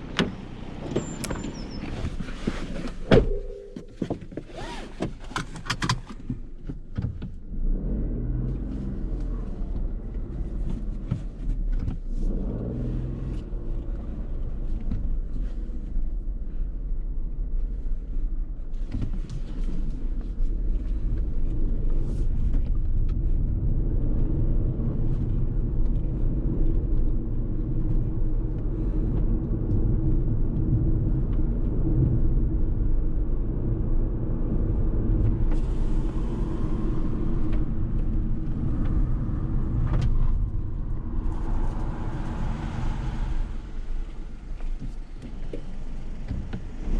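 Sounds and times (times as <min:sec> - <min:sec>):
car engine low rumble: 0:00.0 - 0:46.9
knocks and clicks: 0:03.0 - 0:04.5.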